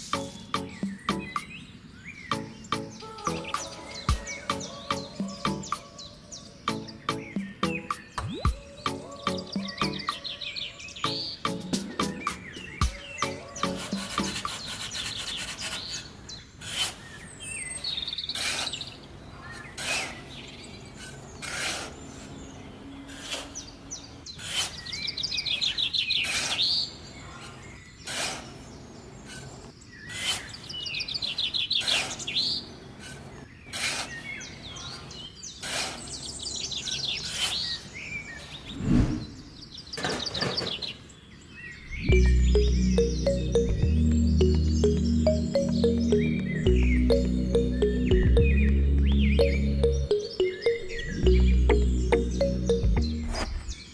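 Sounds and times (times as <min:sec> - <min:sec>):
birds trilling chirps: 0:00.0 - 0:53.9.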